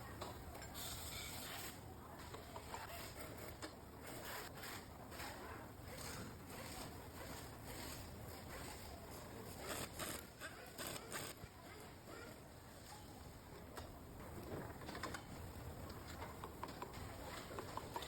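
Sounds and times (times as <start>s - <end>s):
clicks and scrapes: 0.6s - 11.4s.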